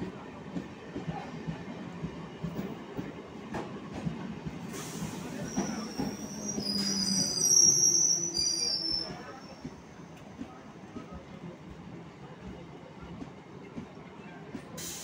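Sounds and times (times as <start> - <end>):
train low rumble: 0.0 - 15.0
high-pitched wheel squeal: 5.4 - 9.4.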